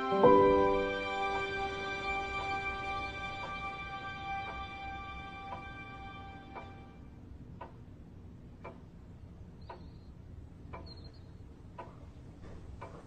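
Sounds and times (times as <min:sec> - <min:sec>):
low background hum: 0:00.0 - 0:13.0
faint ticking: 0:02.6 - 0:13.0.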